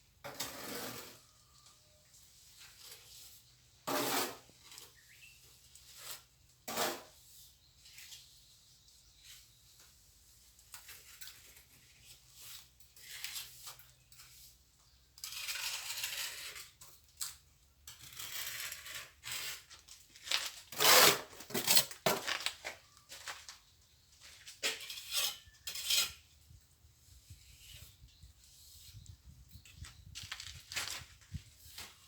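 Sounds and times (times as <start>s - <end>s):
trowel scraping mortar: 0.2s - 1.4s, 2.7s - 5.2s, 5.8s - 7.5s, 10.8s - 14.6s, 15.2s - 17.0s, 17.8s - 22.6s, 24.5s - 26.5s.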